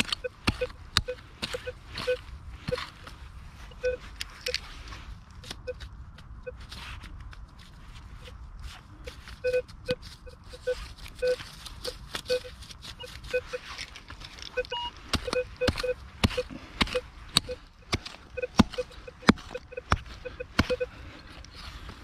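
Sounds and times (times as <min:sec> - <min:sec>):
metal detector beeping: 0:00.0 - 0:03.0, 0:03.7 - 0:04.6, 0:09.4 - 0:13.7, 0:14.5 - 0:21.1.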